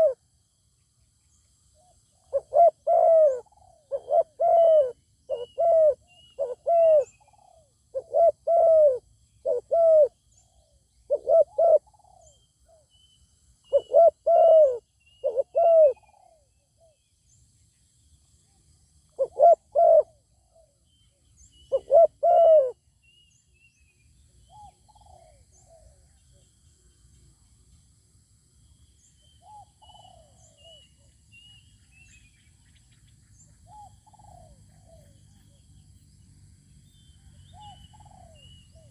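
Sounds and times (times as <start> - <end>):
small birds chirping: 0.9 - 8.4, 20.4 - 27.2, 28.6 - 38.9
doves cooing: 2.3 - 10.2, 11.1 - 12.3, 13.7 - 16.4, 19.2 - 20.2, 21.7 - 22.8, 33.7 - 35.7, 37.2 - 38.9.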